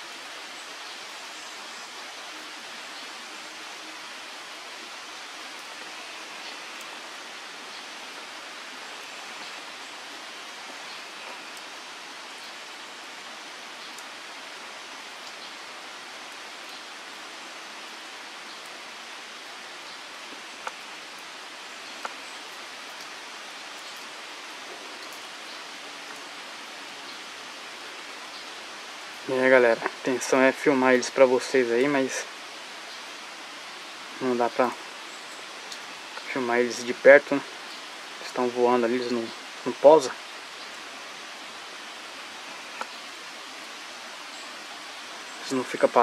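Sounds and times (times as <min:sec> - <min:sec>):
rain falling on a pond: 0:00.0 - 0:46.0.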